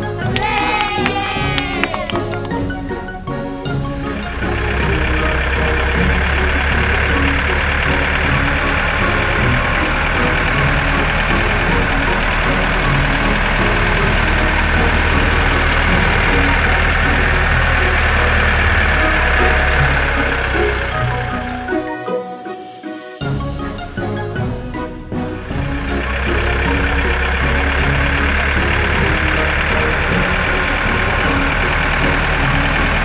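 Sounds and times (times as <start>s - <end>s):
heavy machinery engine running: 3.9s - 22.0s, 25.3s - 33.0s.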